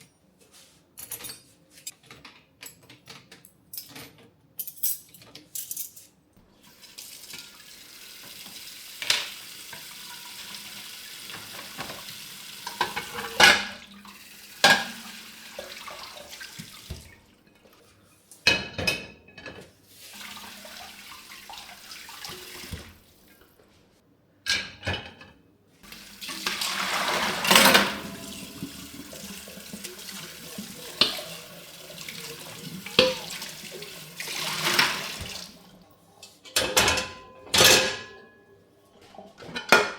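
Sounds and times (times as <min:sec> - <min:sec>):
kitchen tap running into sink: 0:06.6 - 0:17.4, 0:19.9 - 0:23.4, 0:25.8 - 0:35.8
dishes and utensils clinking: 0:11.3 - 0:17.8, 0:18.4 - 0:20.3, 0:24.5 - 0:35.6, 0:36.2 - 0:38.6.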